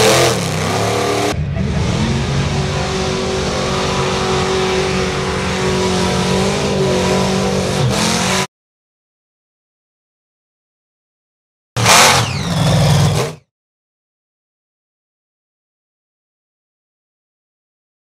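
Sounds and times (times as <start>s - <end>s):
truck engine running hard: 0.0s - 8.5s, 11.8s - 13.4s.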